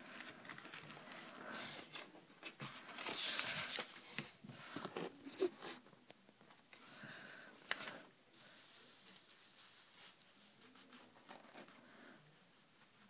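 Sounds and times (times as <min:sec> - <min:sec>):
rustling and scraping: 0:00.0 - 0:05.8.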